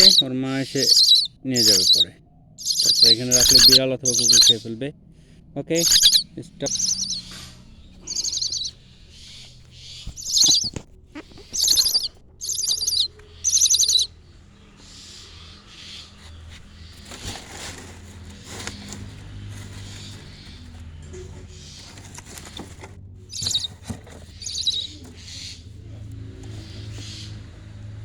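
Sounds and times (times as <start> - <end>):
bird giving harsh scratchy calls: 0.0 - 4.8, 5.8 - 14.1, 14.8 - 25.7.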